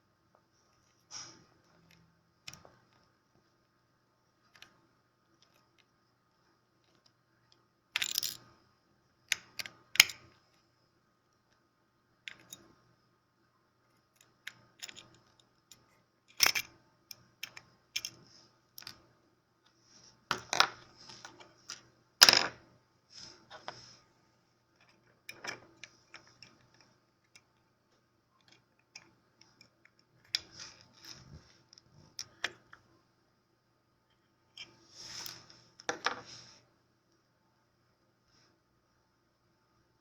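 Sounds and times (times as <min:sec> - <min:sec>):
small tools clicking and scraping: 0:08.0 - 0:08.5, 0:14.1 - 0:19.0, 0:24.8 - 0:27.6.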